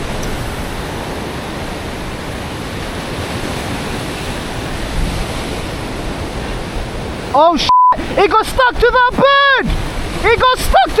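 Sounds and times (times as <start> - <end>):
wind buffeting microphone: 0.0 - 7.4
surf washing on shore: 0.0 - 11.0.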